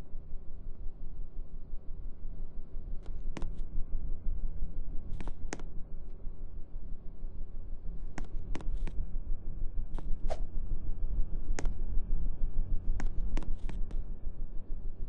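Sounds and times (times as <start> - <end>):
sharp clicks: 13.0 - 14.0.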